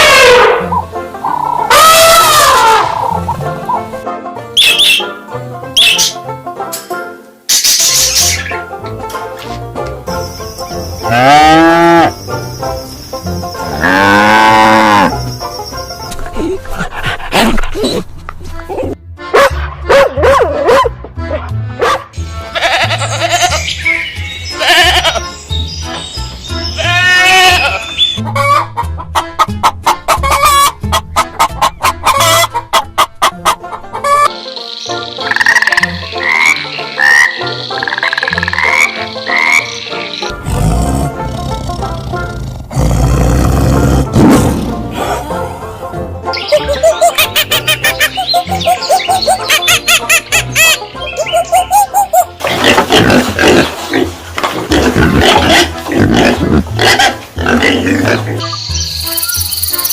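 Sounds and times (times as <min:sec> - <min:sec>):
chickens clucking: 0:00.6 - 0:04.0, 0:27.9 - 0:40.4, 0:46.3 - 0:58.7
bird chirps: 0:04.6 - 0:05.1, 0:05.8 - 0:06.2, 0:34.4 - 0:38.2, 0:47.7 - 0:52.2, 0:58.4 - 0:59.9
pig grunting: 0:40.3 - 0:45.7, 0:52.4 - 0:58.4.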